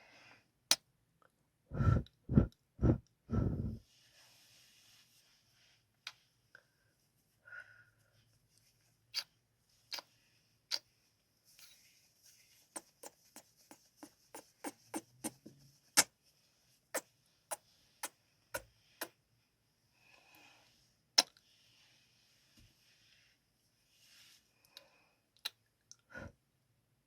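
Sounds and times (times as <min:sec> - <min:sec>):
faint breaths: 0:01.7 - 0:05.6, 0:19.9 - 0:20.9.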